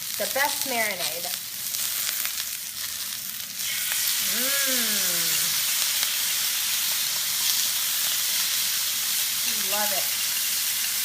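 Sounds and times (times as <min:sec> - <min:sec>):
peppers sizzling in a pan: 0:00.0 - 0:11.0
person humming: 0:04.2 - 0:05.6.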